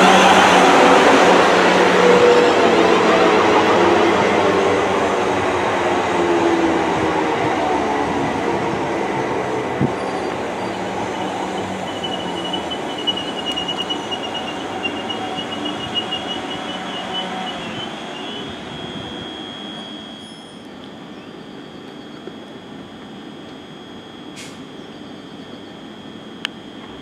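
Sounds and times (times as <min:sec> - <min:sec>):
wheels squealing on rails: 0:00.0 - 0:03.4, 0:09.5 - 0:22.4
train rumbling past: 0:00.0 - 0:19.8.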